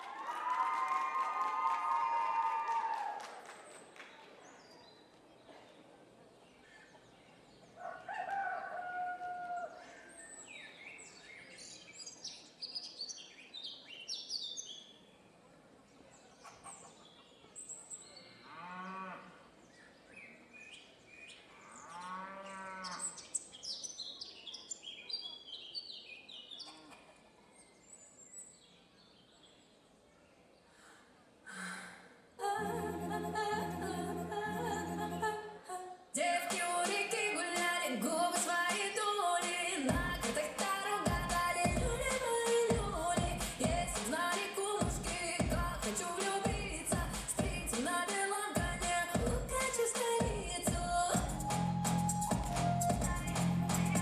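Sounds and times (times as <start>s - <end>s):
music over speakers: 36.2s - 54.0s.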